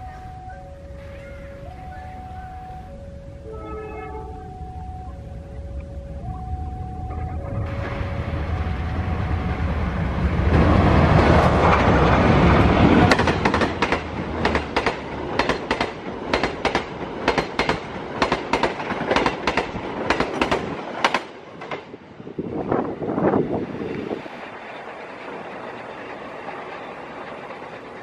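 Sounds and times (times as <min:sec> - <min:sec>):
locomotive rumble: 0:00.0 - 0:28.0
wheels clicking over rail joints: 0:10.4 - 0:22.0.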